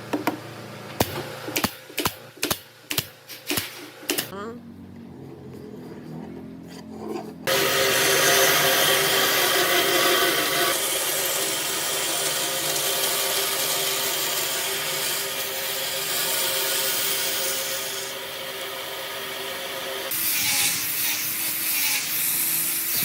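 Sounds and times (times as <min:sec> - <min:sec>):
power tool cutting wood: 0:07.5 - 0:23.0.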